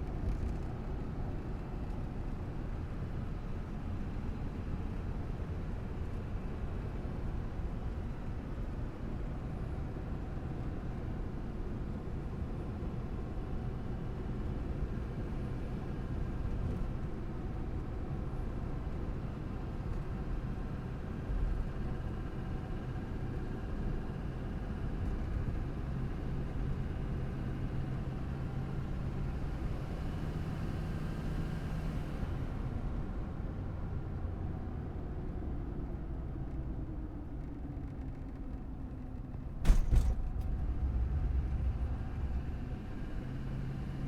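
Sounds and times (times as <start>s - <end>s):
truck engine and road rumble: 0.0s - 44.0s
brief low thump: 39.6s - 42.5s.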